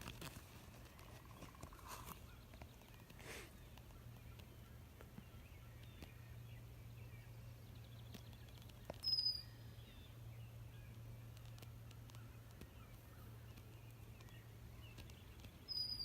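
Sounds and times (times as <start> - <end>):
faint bird calls: 0.3 - 16.0
high clear bird chirp: 7.0 - 11.1, 12.2 - 16.0.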